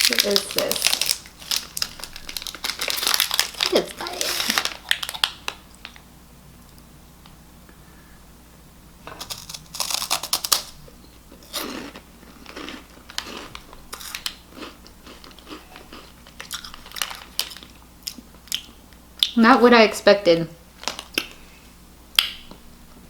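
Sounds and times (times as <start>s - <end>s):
chewing crunches: 9.1s - 10.8s, 11.4s - 19.4s
crunchy snack being bitten: 9.1s - 10.8s, 11.4s - 18.7s.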